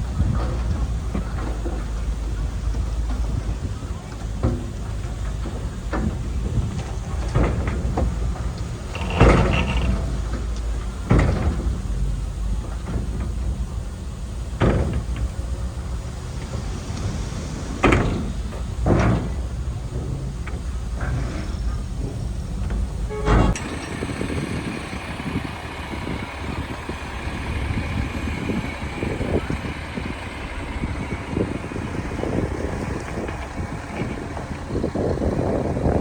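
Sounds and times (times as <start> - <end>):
diesel engine rumbling: 0.0 - 36.0
loud metallic clanks: 4.2 - 13.8, 17.8 - 36.0.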